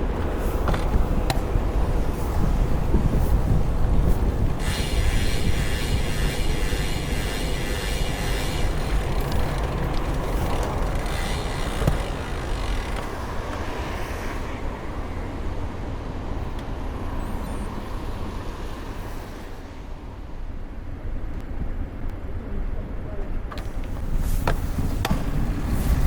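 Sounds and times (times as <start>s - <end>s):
road traffic rumble: 0.0s - 26.0s
vehicle passing: 0.2s - 20.7s.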